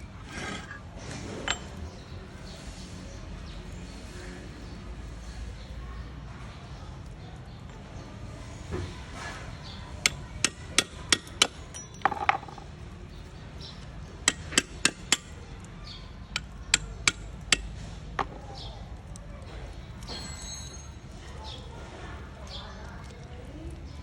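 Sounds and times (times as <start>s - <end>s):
hammer tapping on metal: 10.0s - 12.7s, 14.3s - 15.4s, 16.4s - 18.4s.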